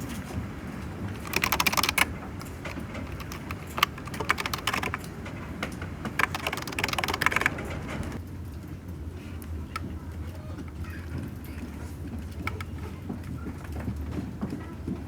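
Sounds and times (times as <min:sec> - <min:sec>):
typing on computer keyboard: 0:00.6 - 0:08.2.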